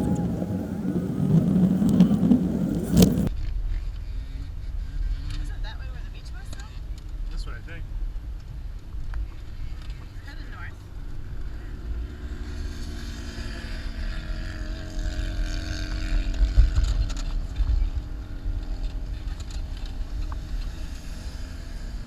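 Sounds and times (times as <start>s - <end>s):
car engine running under load: 0.0s - 3.3s
wind buffeting microphone: 0.0s - 3.3s.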